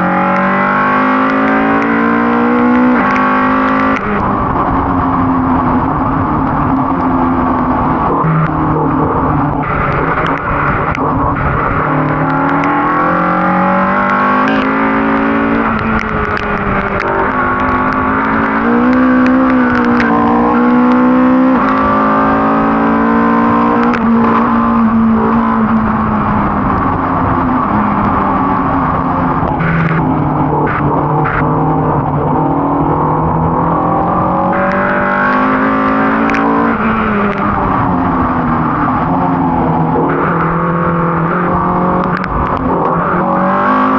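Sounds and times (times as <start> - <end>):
race car engine: 0.0 - 43.9
sharp clicks and knocks: 2.9 - 4.3, 6.4 - 22.0, 23.7 - 24.6, 34.4 - 37.9, 38.8 - 43.2.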